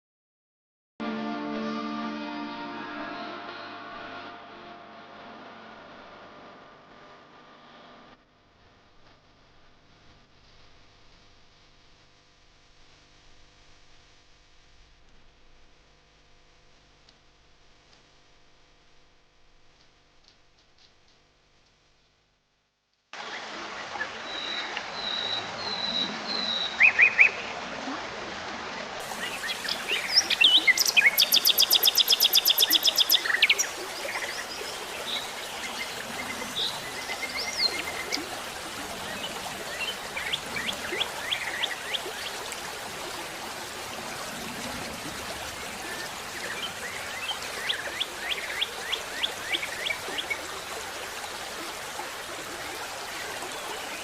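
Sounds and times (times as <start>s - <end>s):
birds chirping: 29.0s - 42.4s.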